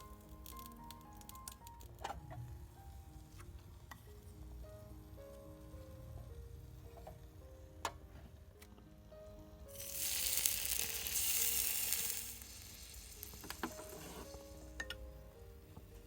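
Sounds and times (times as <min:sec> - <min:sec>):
food sizzling in frying pan: 0:09.7 - 0:15.0.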